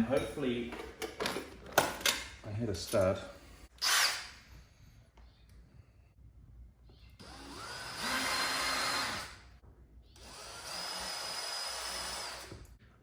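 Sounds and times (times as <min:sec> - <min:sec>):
power drill whining: 0:03.8 - 0:04.4, 0:07.2 - 0:09.4, 0:10.2 - 0:12.7.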